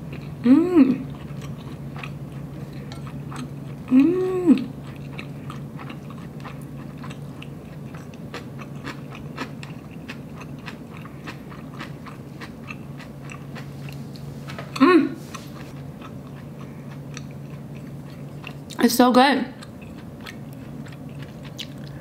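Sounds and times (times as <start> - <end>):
low steady hum: 0.0 - 22.0
close chewing with wet mouth clicks: 0.1 - 0.4, 1.0 - 4.0, 4.6 - 14.0, 15.3 - 18.8, 19.6 - 22.0
person humming mm: 0.4 - 1.1, 3.9 - 4.7, 14.8 - 15.2.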